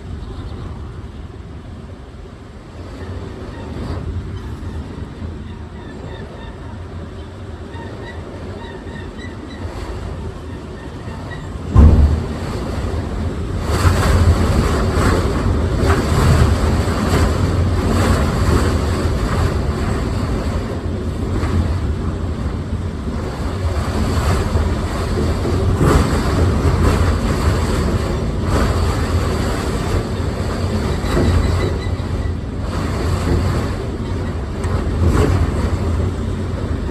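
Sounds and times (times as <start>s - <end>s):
storm wind buffeting microphone: 9.6s - 36.9s
sharp bang: 11.7s - 13.2s.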